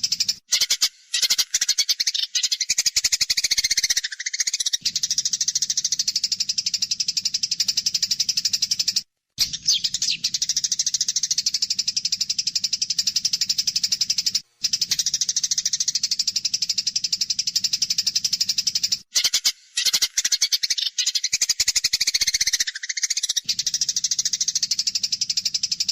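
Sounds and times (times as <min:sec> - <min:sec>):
sparrows rattling chatter: 0:00.0 - 0:25.9.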